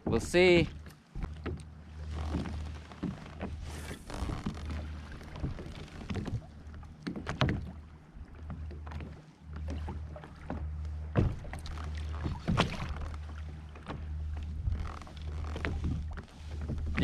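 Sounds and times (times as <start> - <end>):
fishing gear knocking on hull: 0.0 - 1.6, 10.5 - 14.1
steady low hum: 0.0 - 17.0.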